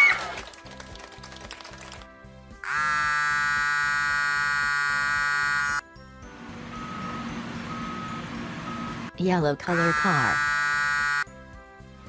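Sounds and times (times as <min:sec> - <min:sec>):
soft background music: 0:00.0 - 0:12.0
loud buzzer tone: 0:02.6 - 0:05.8, 0:09.7 - 0:11.3.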